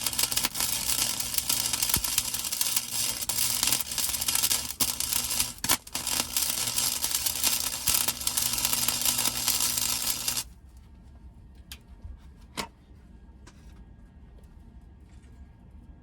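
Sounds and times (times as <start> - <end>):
welding arc crackling: 0.0 - 10.5.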